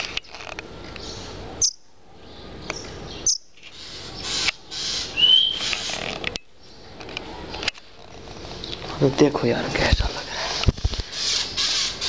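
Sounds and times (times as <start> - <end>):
bird chirping: 0.0 - 7.6
bird whistled note: 5.2 - 5.6.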